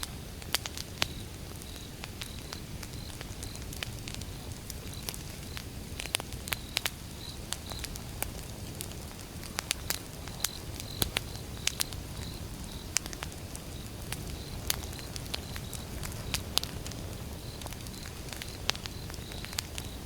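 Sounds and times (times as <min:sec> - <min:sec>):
campfire crackling and popping: 0:00.0 - 0:20.0
low rumble of flames: 0:00.0 - 0:20.0.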